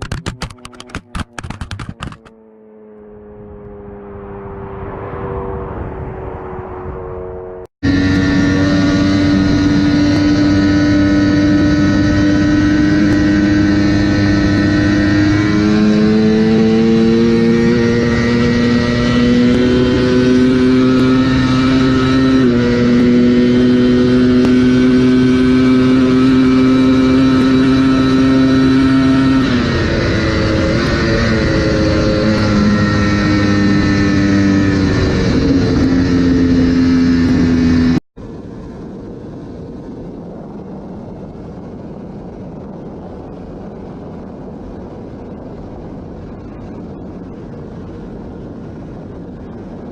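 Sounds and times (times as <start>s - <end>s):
motorcycle engine at high revs: 0.0s - 5.7s, 7.2s - 38.0s
wind rush: 3.2s - 49.9s.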